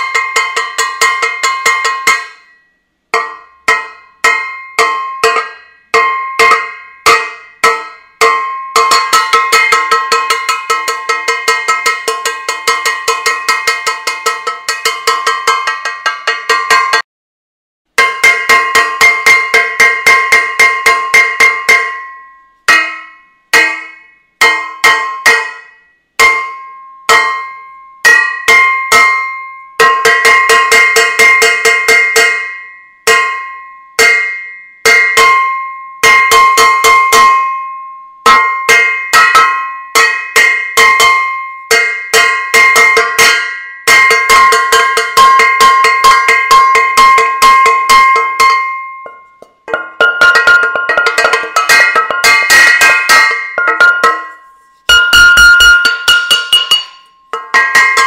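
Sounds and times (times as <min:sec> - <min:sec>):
metal saucepan banging: 0:00.0 - 0:02.5, 0:03.2 - 0:17.0, 0:38.3 - 0:58.0.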